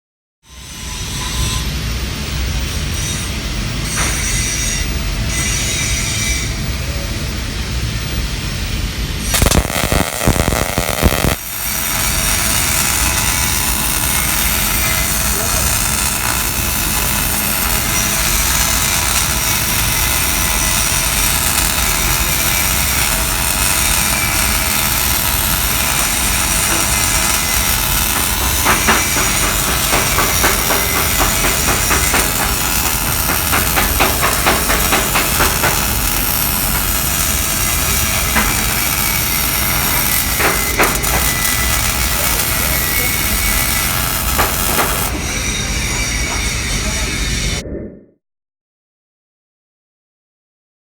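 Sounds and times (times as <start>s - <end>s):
welding arc hissing and crackling: 7.6s - 46.8s.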